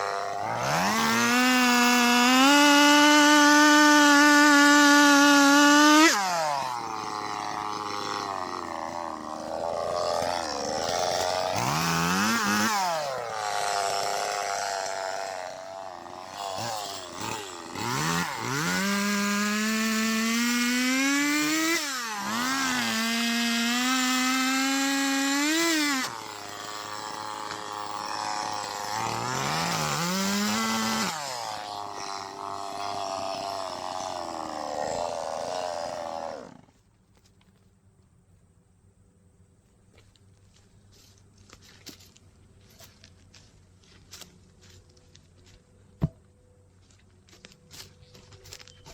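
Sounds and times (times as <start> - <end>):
chainsaw cutting logs: 0.0 - 37.4, 46.0 - 46.3.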